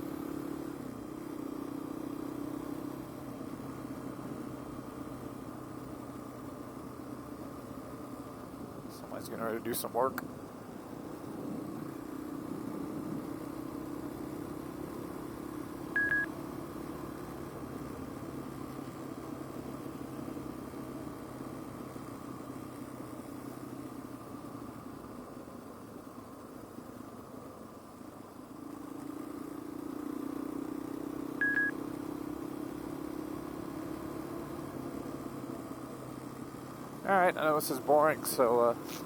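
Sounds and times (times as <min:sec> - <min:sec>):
motorcycle engine running: 0:00.0 - 0:09.6, 0:10.2 - 0:39.0
high-pitched electronic beep: 0:16.0 - 0:16.3, 0:31.4 - 0:31.8.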